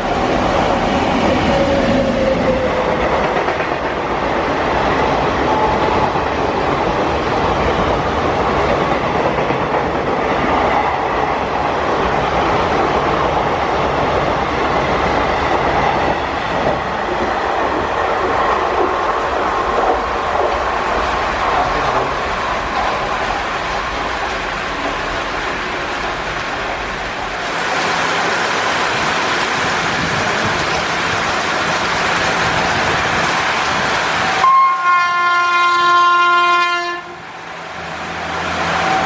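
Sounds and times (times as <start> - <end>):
train wheels clattering: 0.0 - 4.2
heavy rain hiss: 19.2 - 34.5
train horn: 34.3 - 37.3.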